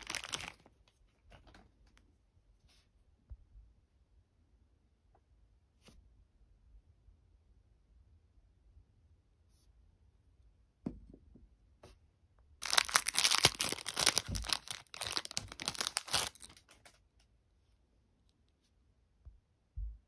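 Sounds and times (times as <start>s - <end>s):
packaging torn and crinkled: 0.0s - 0.7s, 12.6s - 17.0s.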